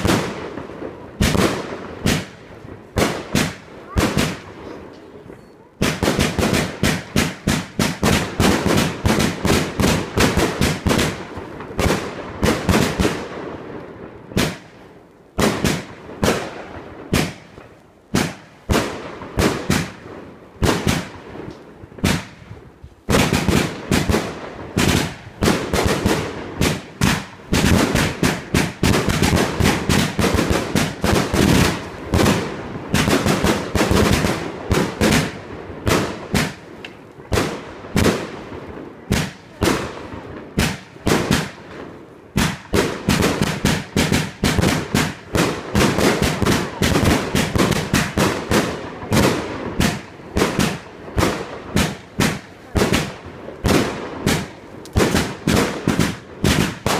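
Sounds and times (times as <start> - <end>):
fireworks bangs: 0.0 - 56.9.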